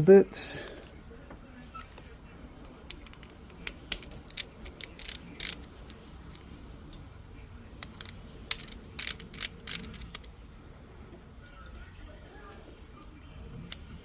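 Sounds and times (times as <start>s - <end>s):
metal tools clicking: 2.9s - 6.4s, 7.8s - 10.4s.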